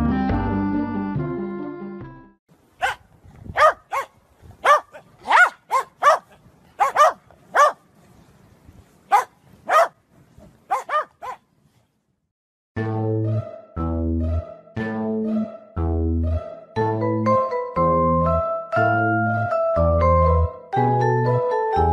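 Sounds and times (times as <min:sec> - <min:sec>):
dog barking: 0:02.8 - 0:03.0, 0:03.6 - 0:07.8, 0:09.1 - 0:10.0, 0:10.7 - 0:11.4.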